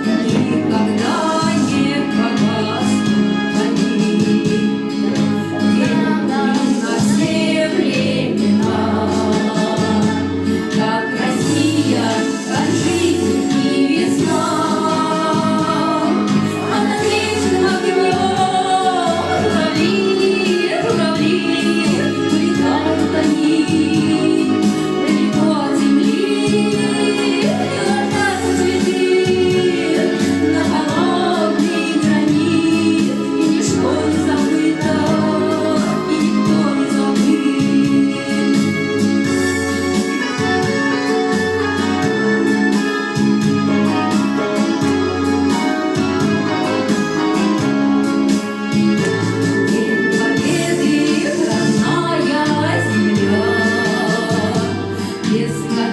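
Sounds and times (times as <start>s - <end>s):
steady bass line: 0.0s - 25.7s, 37.6s - 55.9s
instrumental accompaniment: 0.0s - 55.9s
people singing: 0.0s - 55.9s.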